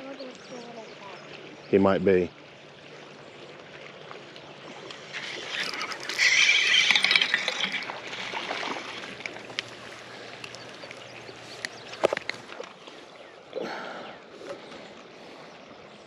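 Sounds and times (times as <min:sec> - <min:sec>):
water splashing and sloshing: 0:00.0 - 0:16.0
stream rushing: 0:04.0 - 0:15.2.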